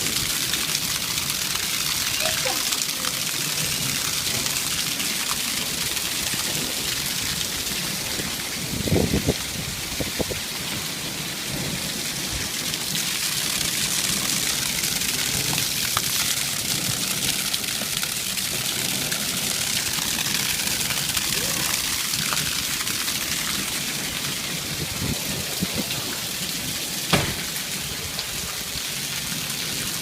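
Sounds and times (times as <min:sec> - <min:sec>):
heavy rain pouring: 0:00.0 - 0:30.0
thunder rumbling: 0:27.1 - 0:28.4.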